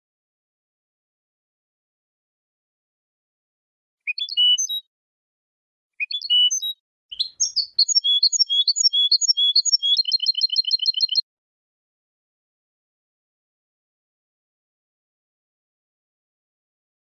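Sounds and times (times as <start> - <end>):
finch singing with fast trill: 4.1 - 4.9, 6.0 - 11.2.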